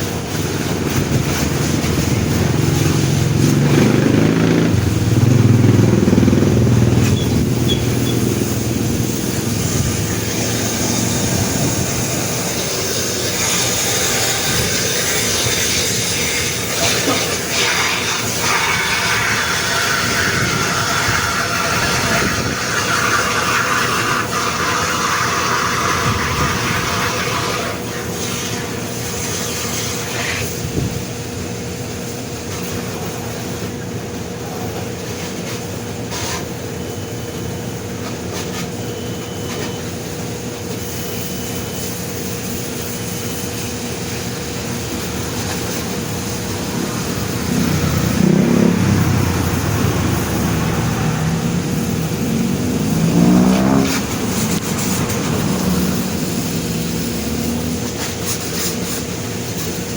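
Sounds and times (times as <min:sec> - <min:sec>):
water spray hissing: 0:00.0 - 0:30.7, 0:40.8 - 0:59.9
machine hum: 0:00.1 - 0:19.7, 0:42.6 - 0:58.0.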